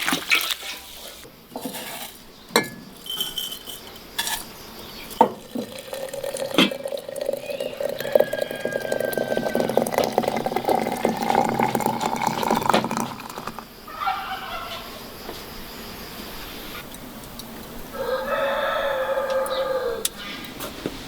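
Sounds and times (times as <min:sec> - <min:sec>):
liquid pouring into container: 0:05.1 - 0:13.7.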